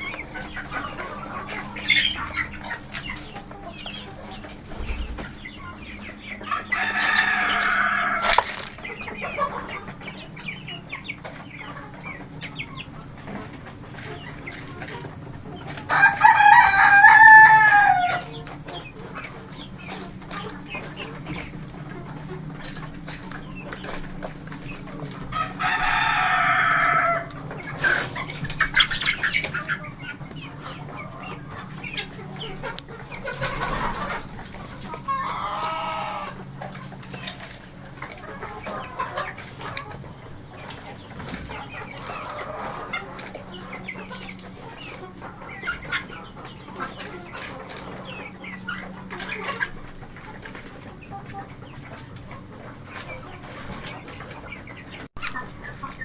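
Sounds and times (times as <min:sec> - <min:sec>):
chickens clucking: 0:00.0 - 0:56.0
rooster crowing: 0:06.6 - 0:08.4, 0:15.9 - 0:18.3, 0:25.4 - 0:27.3.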